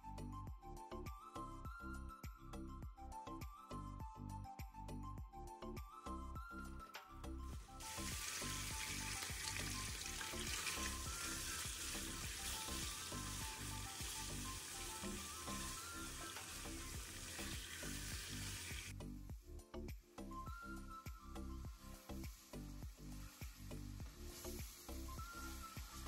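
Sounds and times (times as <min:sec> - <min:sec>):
chicken sizzling in hot oil: 0:07.8 - 0:19.0, 0:20.8 - 0:26.0.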